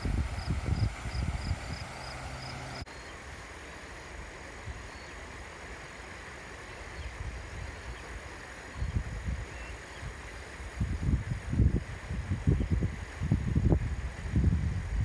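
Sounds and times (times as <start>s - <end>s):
wind buffeting microphone: 0.0s - 2.8s, 8.8s - 15.0s
stream water flowing: 0.0s - 12.2s.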